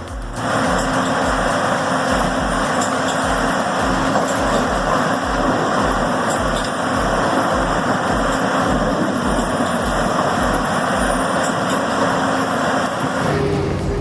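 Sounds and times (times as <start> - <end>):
heavy machine engine running: 0.0 - 14.0
deep low thuds: 3.3 - 11.2.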